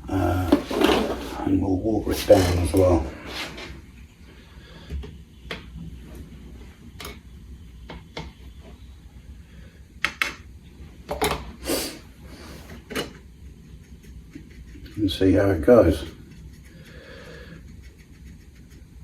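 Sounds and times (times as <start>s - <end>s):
brush scraping: 0.5s - 3.8s, 13.6s - 19.0s.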